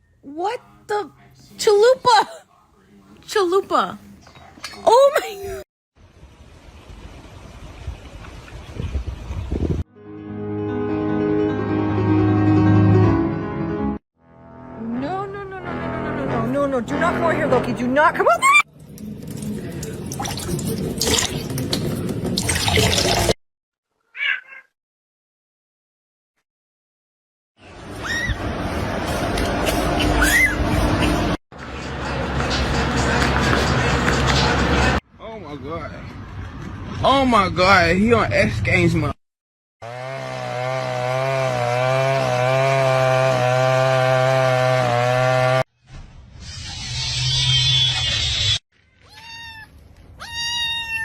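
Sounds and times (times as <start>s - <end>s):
water running and splashing: 18.7s - 23.4s
cat meowing: 24.1s - 24.7s, 48.9s - 51.0s.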